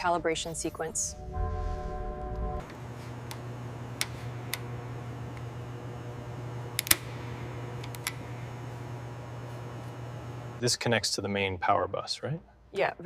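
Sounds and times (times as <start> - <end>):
steady low hum: 0.0 - 11.8
held tone: 0.9 - 9.7.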